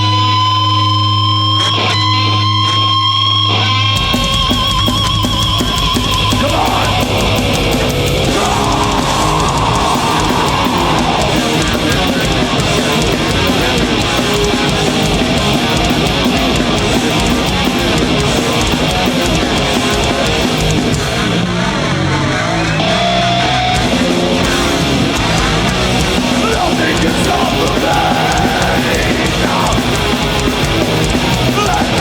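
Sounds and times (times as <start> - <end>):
bending electric guitar line: 0.0 - 32.0
heavy metal band playing: 0.0 - 32.0.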